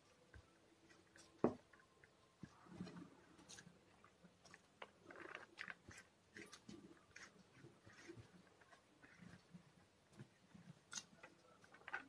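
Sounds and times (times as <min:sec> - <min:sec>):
faint chewing of rice: 0:00.0 - 0:12.0
fingers mixing rice on a plate: 0:02.4 - 0:12.0.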